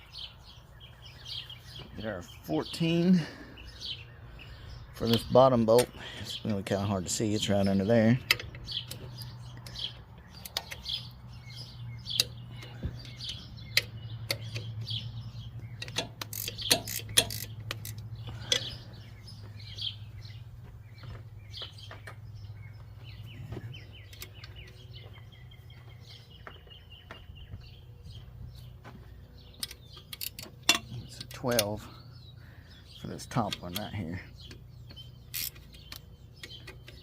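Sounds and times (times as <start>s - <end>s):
small birds chirping: 0.0s - 37.0s
wrench clicking on metal: 15.8s - 18.8s, 35.3s - 37.0s.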